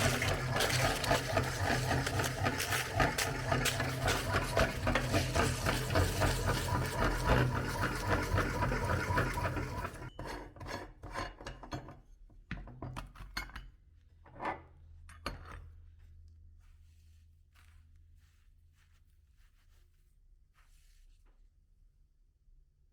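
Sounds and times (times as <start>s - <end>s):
cone crunching in grinder: 0.0s - 10.0s
meat grinder motor hum: 0.0s - 10.1s.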